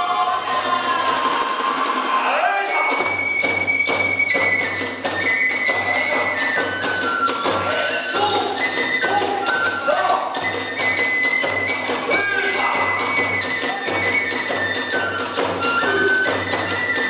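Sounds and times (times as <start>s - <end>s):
large drum beat: 0.0s - 10.6s
bamboo flute: 0.0s - 17.0s.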